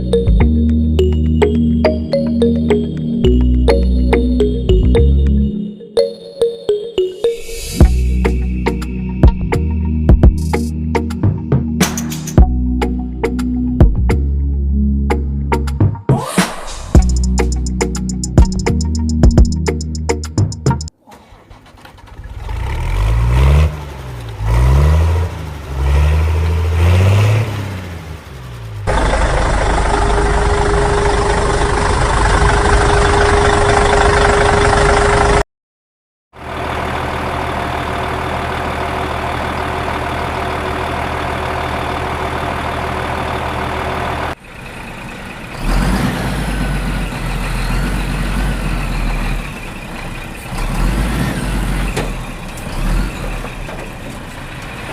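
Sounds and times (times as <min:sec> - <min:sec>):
vehicle engine revving: 0:21.5 - 0:35.4, 0:36.4 - 0:54.9.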